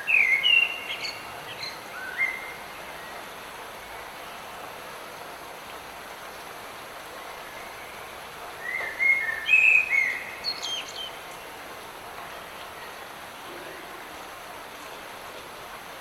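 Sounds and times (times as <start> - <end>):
light rain hissing: 0.0 - 16.0.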